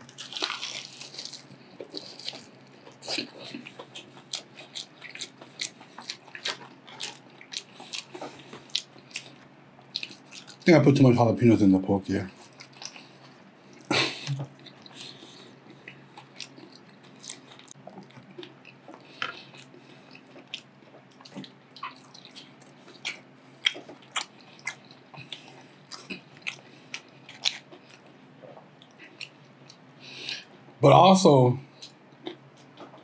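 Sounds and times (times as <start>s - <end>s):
close-miked chewing: 0.0s - 10.8s, 12.2s - 30.7s, 31.8s - 33.0s.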